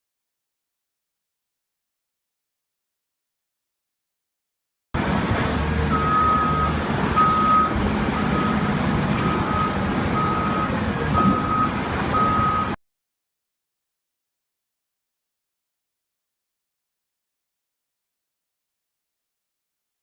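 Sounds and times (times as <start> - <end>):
low engine rumble: 5.0 - 12.8
truck reversing alarm beeping: 5.6 - 12.8.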